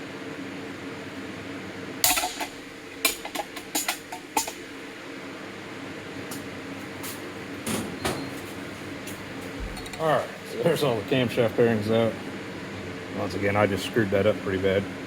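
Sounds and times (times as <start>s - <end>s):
shop fan humming: 0.0s - 15.0s
metal clanks and knocks: 2.0s - 4.6s.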